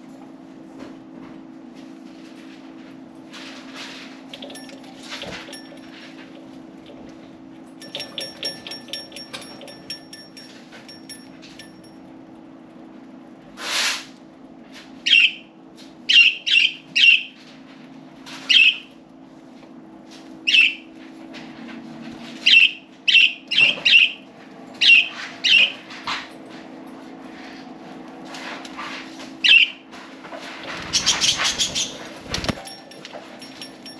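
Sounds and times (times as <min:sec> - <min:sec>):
wings flapping: 0:30.7 - 0:32.7.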